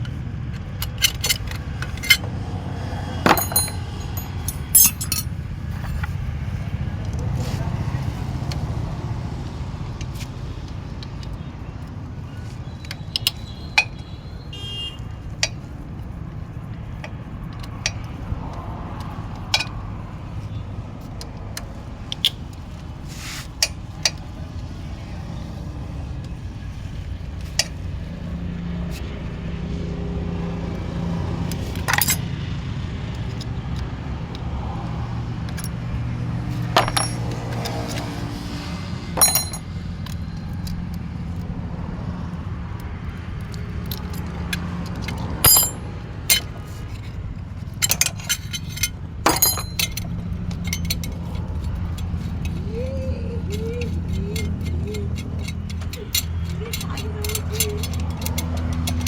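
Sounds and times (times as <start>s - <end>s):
metal tools clinking: 0.9s - 2.3s, 3.2s - 6.2s, 31.7s - 32.2s, 36.7s - 38.1s, 39.2s - 40.6s, 43.5s - 52.7s, 53.5s - 59.0s.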